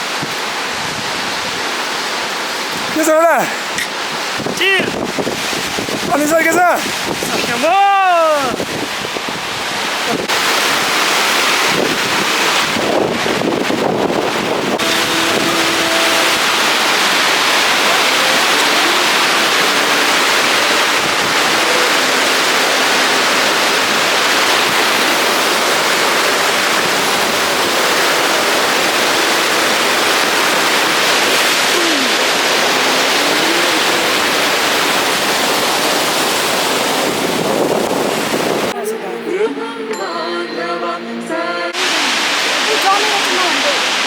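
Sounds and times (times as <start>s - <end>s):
rushing river water roar: 0.0s - 39.8s, 40.5s - 44.0s.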